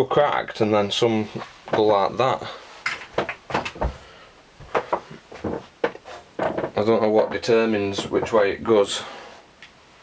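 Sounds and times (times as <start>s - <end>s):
light clicks and knocks: 2.8s - 4.0s, 4.6s - 8.5s.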